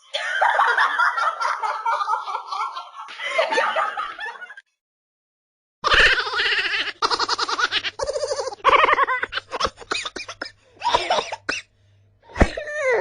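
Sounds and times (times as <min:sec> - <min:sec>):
high-pitched giggling laughter: 0:05.8 - 0:10.4.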